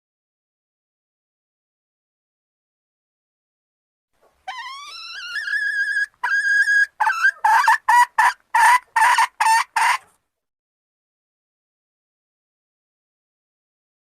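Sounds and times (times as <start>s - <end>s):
junglefowl hen calling: 4.4s - 10.2s.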